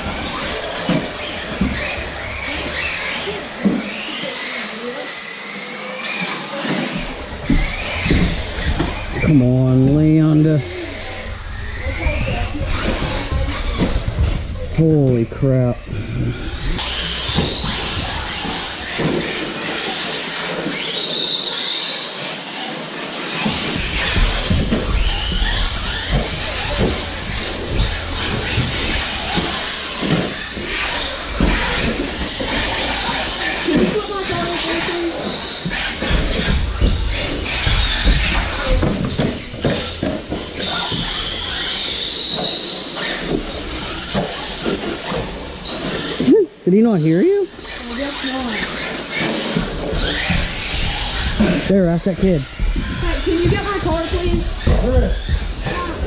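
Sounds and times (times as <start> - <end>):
electric motors whining: 0.0 - 56.0
tyre and chassis noise: 0.0 - 56.0
scattered knocks: 6.8 - 21.1, 23.4 - 46.3.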